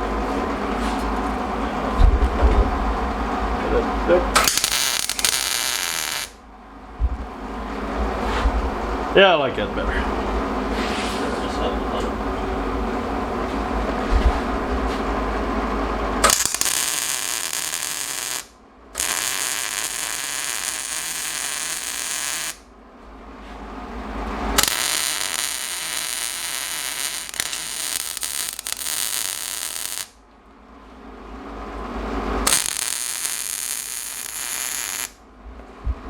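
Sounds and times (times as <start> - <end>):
welder crackling buzz: 4.4 - 6.4, 16.2 - 22.7, 24.6 - 30.2, 32.4 - 35.2.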